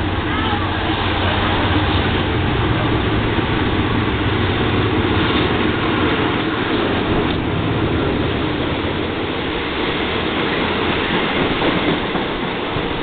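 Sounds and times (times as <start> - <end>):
diesel locomotive engine humming: 0.0 - 13.0.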